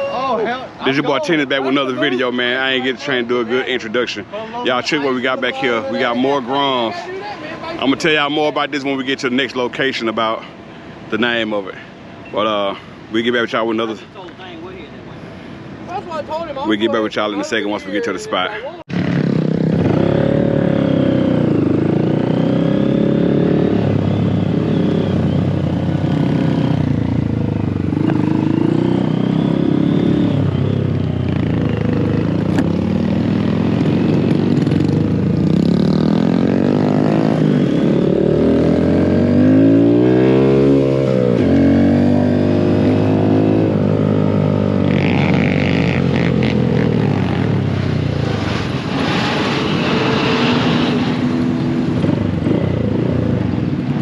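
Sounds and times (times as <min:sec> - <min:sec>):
mini motorcycle engines revving: 0:18.9 - 0:27.0, 0:27.8 - 0:54.0.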